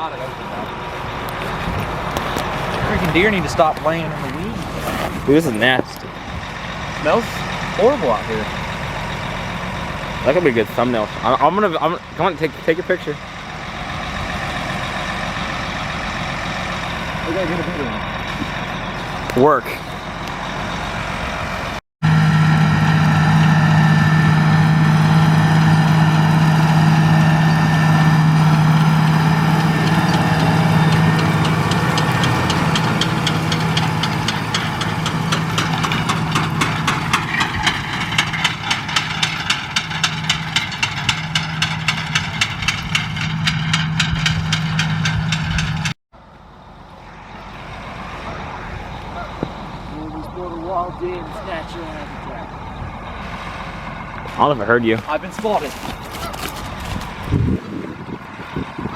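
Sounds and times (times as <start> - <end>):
fast regular ticking: 29.6 - 45.9.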